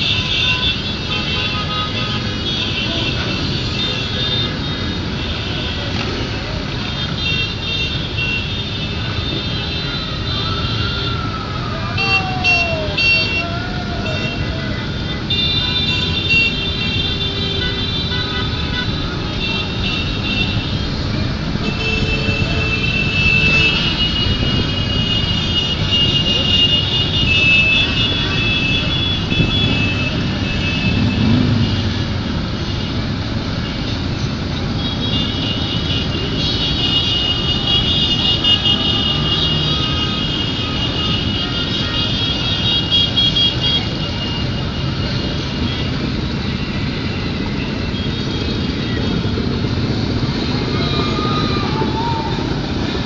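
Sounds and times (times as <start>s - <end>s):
motorcycles riding past: 27.8s - 32.5s.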